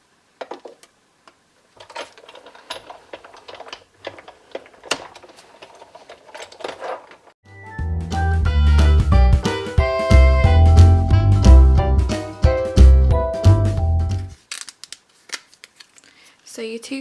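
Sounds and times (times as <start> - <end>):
hand-cranked die-cutting machine: 1.8 - 7.3.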